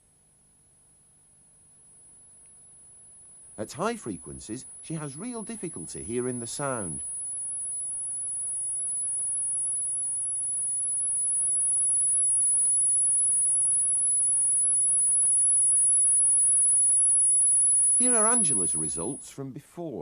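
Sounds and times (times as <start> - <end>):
high-pitched test tone: 15.8 - 19.2.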